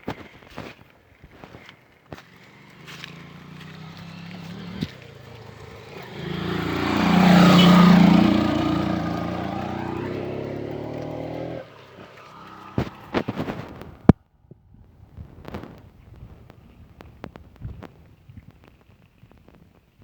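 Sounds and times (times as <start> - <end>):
vehicle engine passing: 2.3 - 14.1.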